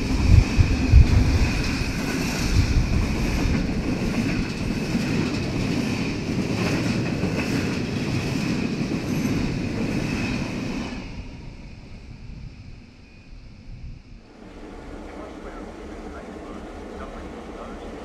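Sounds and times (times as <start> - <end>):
train wheels clattering on rails: 0.0 - 11.5.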